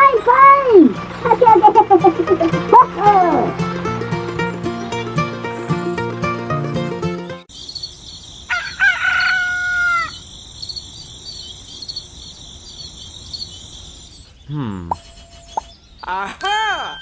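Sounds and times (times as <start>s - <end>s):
music: 0.4s - 7.5s
rooster crowing: 8.5s - 10.2s
high chirping: 10.1s - 17.0s.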